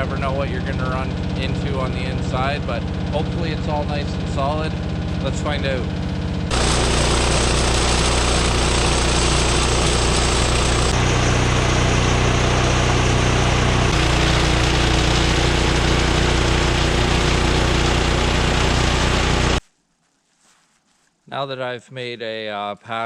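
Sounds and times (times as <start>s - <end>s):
bandsaw mill cutting log: 6.5s - 19.6s.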